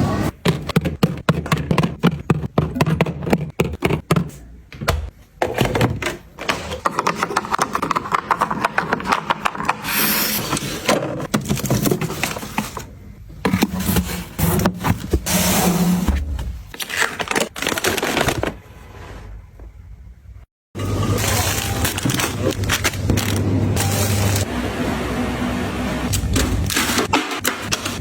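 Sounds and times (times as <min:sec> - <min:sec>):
packaging rustling: 0:16.6 - 0:18.6, 0:21.2 - 0:23.4.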